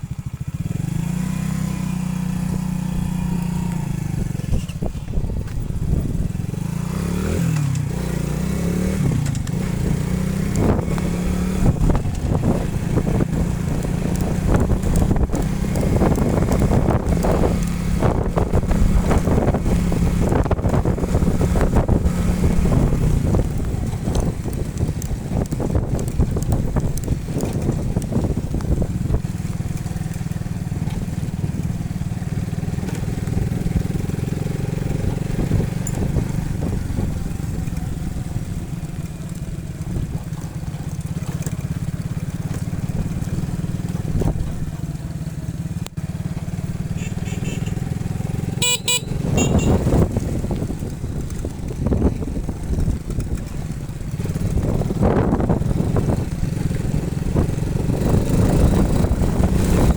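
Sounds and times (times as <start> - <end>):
low wind rumble: 0.0 - 59.9
motorcycle engine running: 0.0 - 59.9
horn toot: 47.0 - 47.9, 48.5 - 50.1.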